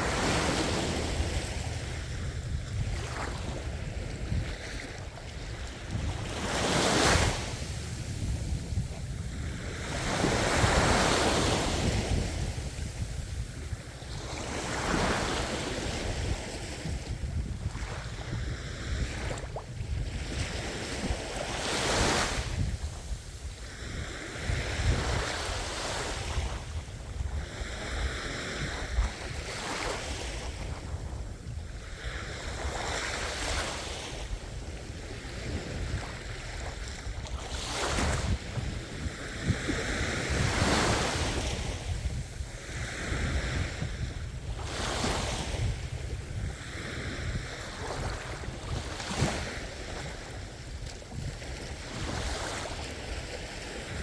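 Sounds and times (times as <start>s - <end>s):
ocean waves washing in: 0.0s - 3.9s
wind rumbling on microphone: 0.0s - 54.0s.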